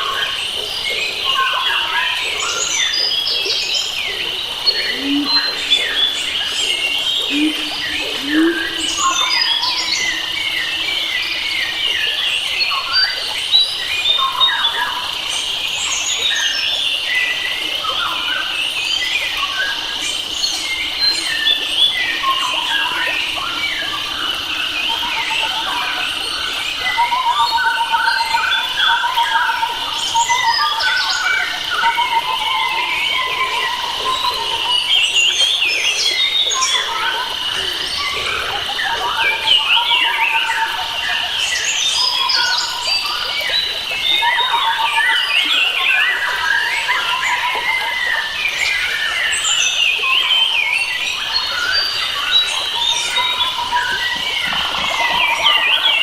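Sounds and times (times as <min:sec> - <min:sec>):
birds chirping and whistling: 0:01.4 - 0:11.6
high insect-like drone: 0:02.3 - 0:12.3.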